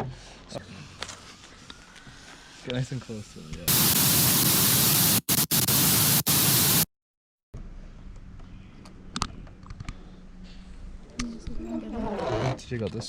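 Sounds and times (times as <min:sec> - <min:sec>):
white-noise static burst: 0:03.7 - 0:06.9.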